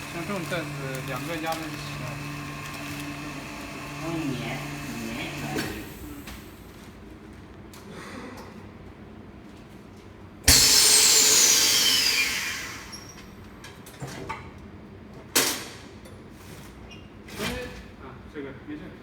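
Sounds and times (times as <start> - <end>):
loud hiss of air: 10.5 - 13.0
faint falling whistles: 10.5 - 13.2.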